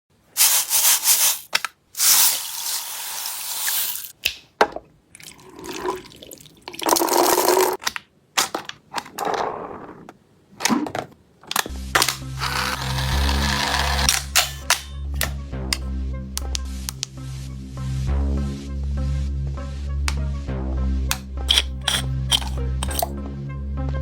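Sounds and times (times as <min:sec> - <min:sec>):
short bursts of hiss: 0:00.4 - 0:04.1.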